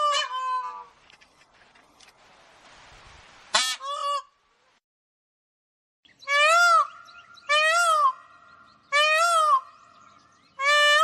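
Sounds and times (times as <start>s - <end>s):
bird honking calls: 6.2s - 11.0s.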